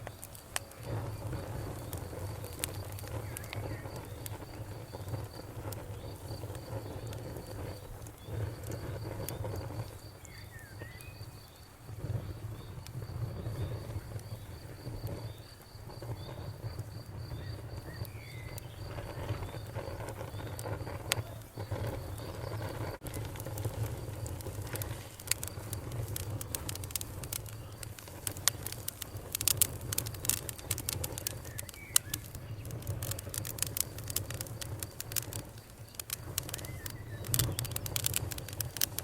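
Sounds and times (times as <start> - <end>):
bonfire crackling and popping: 0.0 - 39.0
crickets chirping: 0.0 - 39.0.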